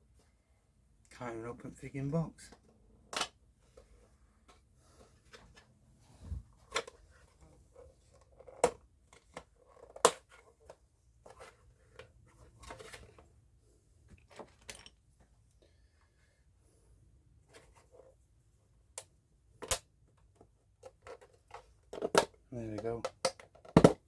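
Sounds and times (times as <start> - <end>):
box clicks and knocks: 23.0 - 24.0.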